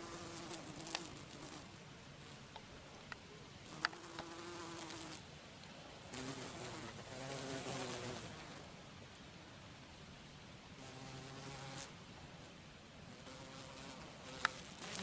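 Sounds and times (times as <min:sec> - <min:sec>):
faint ticks: 0:02.5 - 0:04.4, 0:14.4 - 0:15.0.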